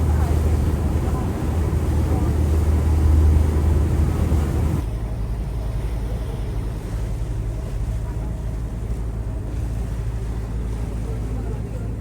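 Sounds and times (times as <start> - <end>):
wind on microphone: 0.0 - 4.8
boat engine droning: 0.0 - 12.0
sea rushing: 0.0 - 12.0.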